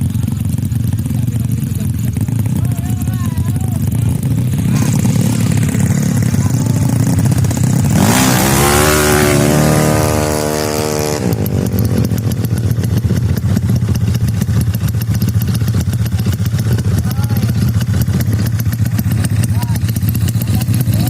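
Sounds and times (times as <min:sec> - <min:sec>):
scooter engine revving: 0:00.0 - 0:21.0.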